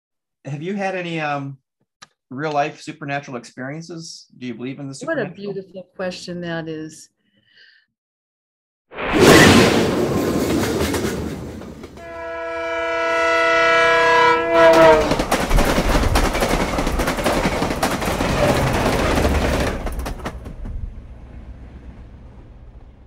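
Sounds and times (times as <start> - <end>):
train rushing and clattering past: 9.3 - 12.1, 14.7 - 23.0
train horn chord: 12.0 - 15.2.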